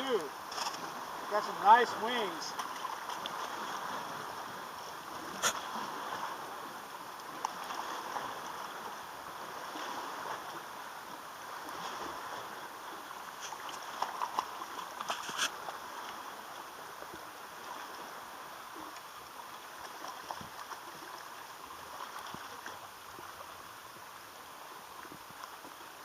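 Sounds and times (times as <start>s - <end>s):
water lapping along shore: 0.0s - 26.0s.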